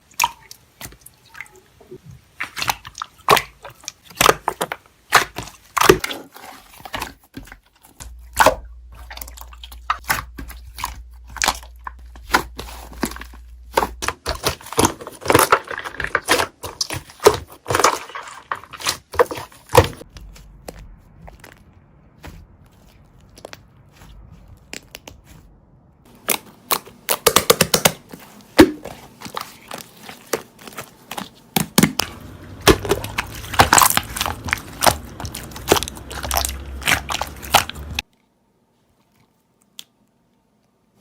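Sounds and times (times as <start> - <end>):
low hum: 8.0 - 14.2, 20.0 - 26.1
slime crackling and popping: 8.0 - 25.5, 26.1 - 38.1.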